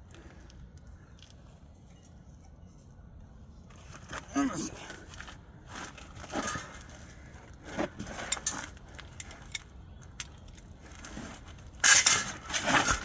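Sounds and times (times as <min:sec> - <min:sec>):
metal tools clinking and scraping: 0:07.8 - 0:11.2, 0:11.8 - 0:13.0
rattling clatter: 0:08.0 - 0:09.6.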